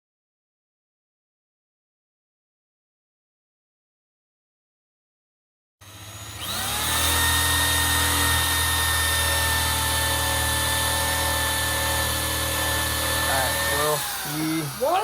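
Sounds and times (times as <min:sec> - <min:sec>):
wire wheel power tool whining: 0:05.8 - 0:15.0.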